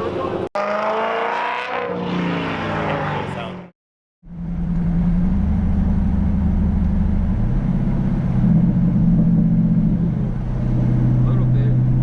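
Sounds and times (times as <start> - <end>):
car engine idling: 4.3 - 10.6.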